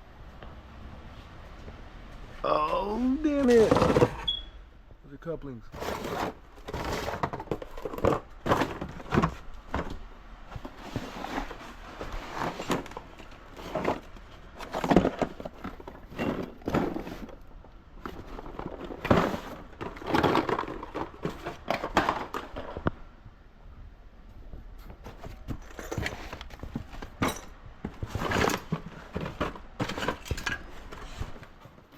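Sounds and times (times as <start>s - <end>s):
electrical parts clattering: 3.2s - 4.4s, 5.4s - 23.0s, 24.4s - 31.9s.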